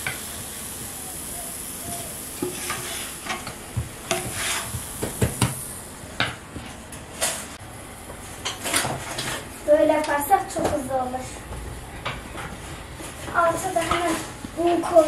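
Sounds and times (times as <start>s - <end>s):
food sizzling in a pan: 0.0s - 5.9s.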